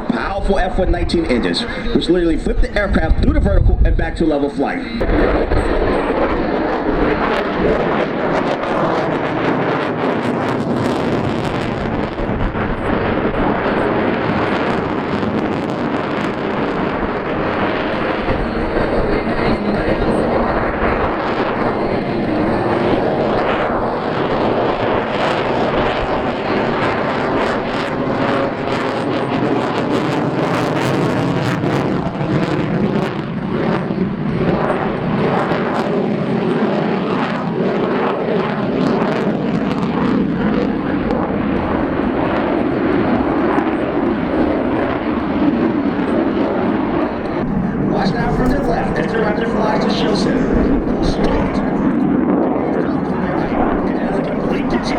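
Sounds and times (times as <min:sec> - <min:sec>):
jet engines roaring with crackle: 0:00.0 - 0:54.9.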